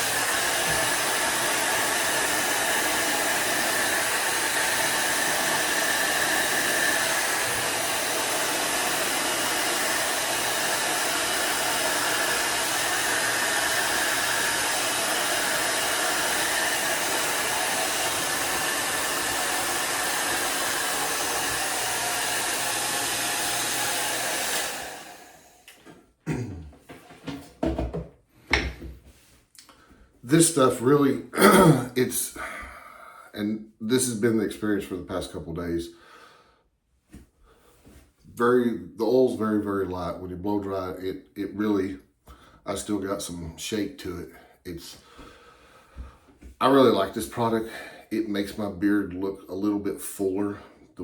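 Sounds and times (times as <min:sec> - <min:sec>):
hair dryer blowing: 0:00.0 - 0:25.8.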